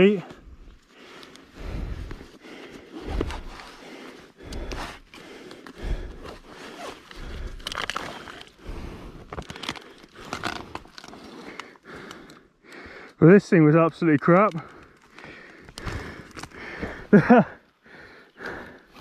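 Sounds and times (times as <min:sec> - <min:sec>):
scraping and crunching: 0:04.7 - 0:11.8.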